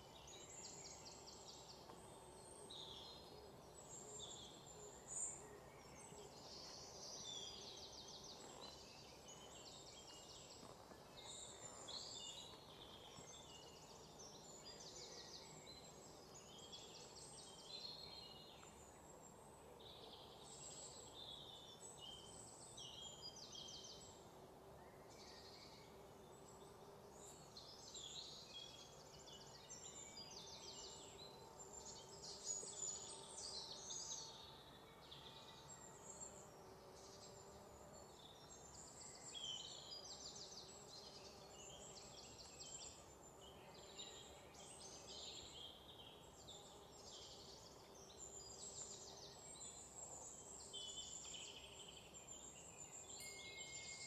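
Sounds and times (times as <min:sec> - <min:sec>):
faint birdsong chirps and trills: 0:00.0 - 0:54.0.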